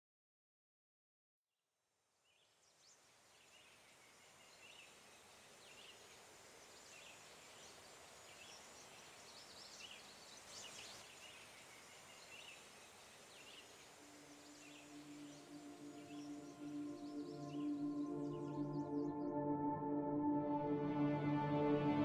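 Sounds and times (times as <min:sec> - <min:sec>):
distant birds chirping: 0:04.0 - 0:19.4.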